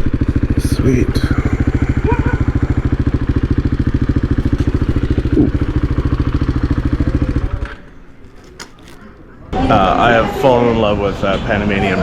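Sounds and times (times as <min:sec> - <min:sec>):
motorcycle engine idling: 0:00.0 - 0:09.2.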